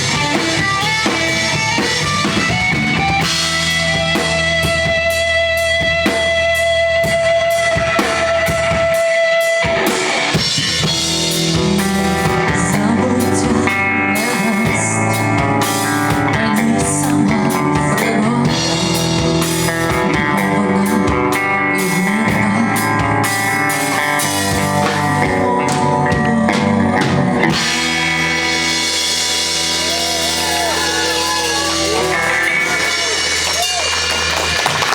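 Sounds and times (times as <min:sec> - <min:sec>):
electric guitar line: 0:00.0 - 0:34.9
rock band playing: 0:00.0 - 0:34.9.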